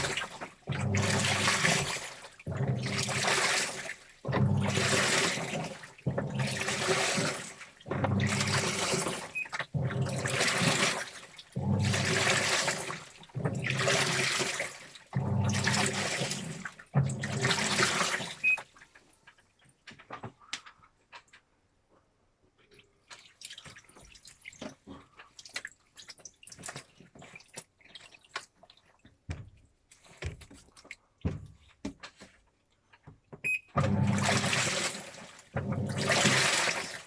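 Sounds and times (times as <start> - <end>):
washing machine sloshing: 0.0 - 20.5, 22.7 - 32.4, 33.1 - 37.0
faint water drips: 22.5 - 31.4.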